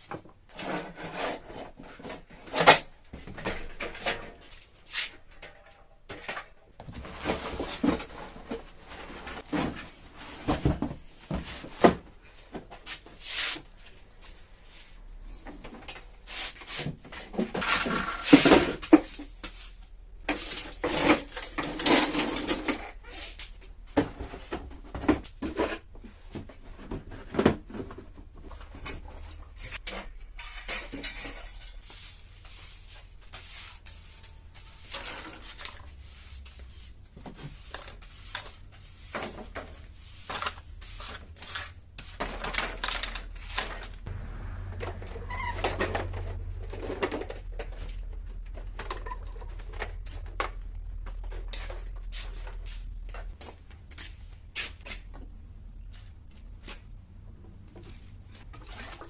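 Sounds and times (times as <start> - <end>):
objects clattering and knocking: 0.0 - 13.2, 15.3 - 32.0, 32.9 - 59.0
rustling or scrubbing: 6.9 - 24.8, 25.4 - 55.1
steady low hum: 43.3 - 58.4.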